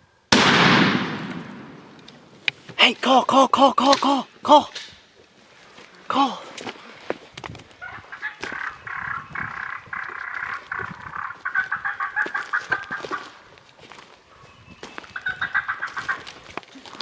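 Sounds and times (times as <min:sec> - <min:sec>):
turkey call hen yelps: 0:07.8 - 0:13.4, 0:15.2 - 0:16.3.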